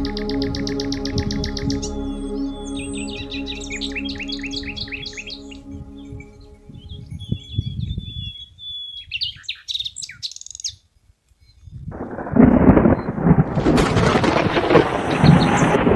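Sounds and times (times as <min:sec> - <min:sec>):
soft low rumble: 0:00.0 - 0:08.2, 0:11.9 - 0:15.9
small birds chirping: 0:00.0 - 0:13.2
loud rumbling crackling noise: 0:11.9 - 0:15.9.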